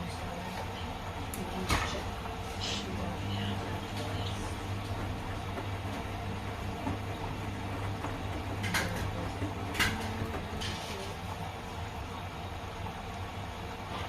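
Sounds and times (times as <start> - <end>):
washing machines humming: 0.0 - 14.0.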